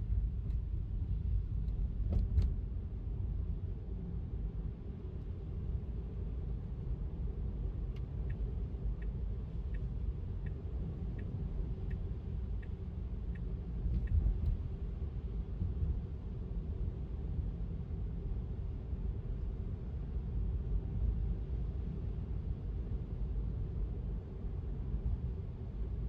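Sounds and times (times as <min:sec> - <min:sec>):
turn signal ticking: 0:08.2 - 0:14.6.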